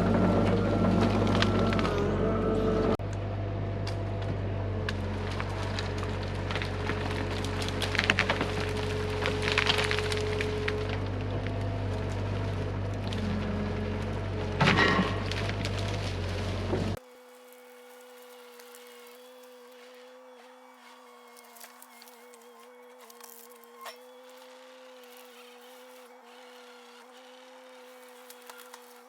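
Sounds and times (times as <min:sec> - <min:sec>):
wood cracking and splintering: 0:00.0 - 0:02.4, 0:03.9 - 0:29.0
excavator diesel engine running: 0:00.0 - 0:19.0
branches snapping: 0:01.0 - 0:02.1, 0:03.9 - 0:29.0.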